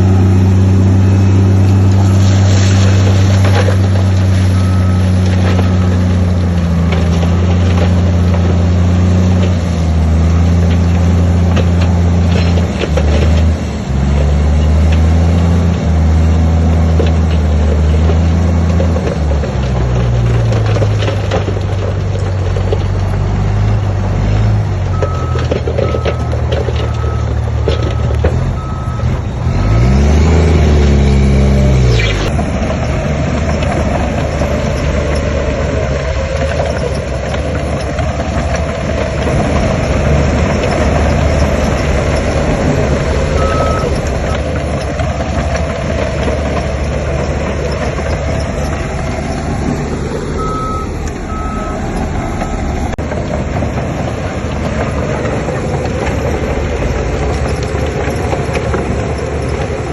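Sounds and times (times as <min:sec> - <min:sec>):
diesel machinery engine revving: 0:00.0 - 0:59.9
reversing alarm beeping: 0:03.7 - 0:06.4, 0:24.9 - 0:29.9, 0:43.2 - 0:44.7, 0:50.3 - 0:52.8.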